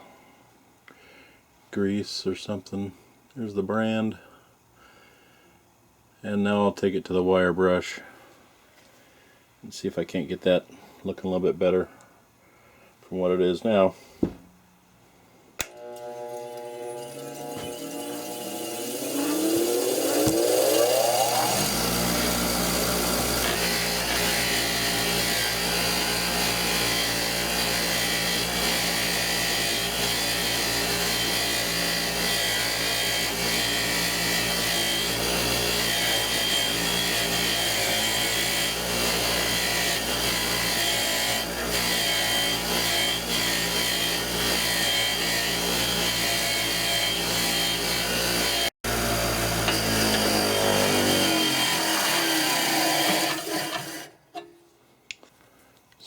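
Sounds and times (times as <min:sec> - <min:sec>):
wire wheel motor whirring: 0:15.6 - 0:25.6, 0:48.9 - 0:54.1
wire wheel scratching metal bar: 0:16.5 - 0:26.9, 0:49.4 - 0:54.5.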